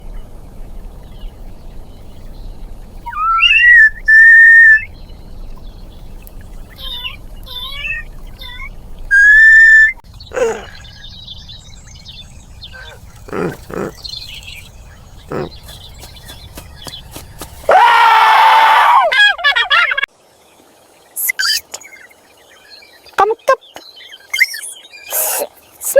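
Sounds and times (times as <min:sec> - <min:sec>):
high whistled tones: 0:03.1 - 0:04.9, 0:09.1 - 0:10.0.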